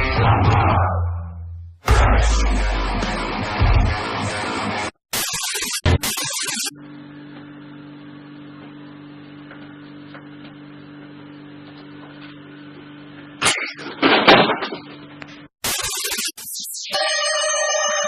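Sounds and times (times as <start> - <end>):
loud noisy sound: 1.8 - 7.0.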